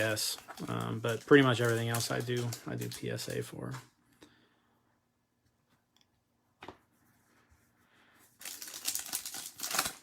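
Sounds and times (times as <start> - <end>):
foil wrapper crinkling and tearing: 0.0 - 3.4, 8.4 - 10.0.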